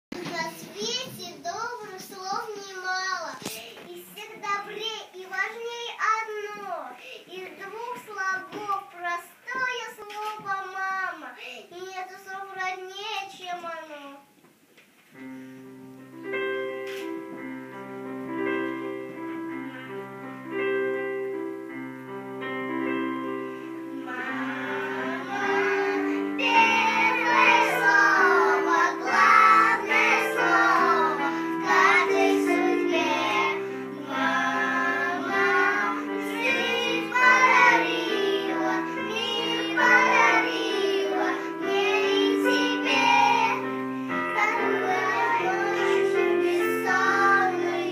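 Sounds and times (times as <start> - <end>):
children singing: 23.9 - 47.9.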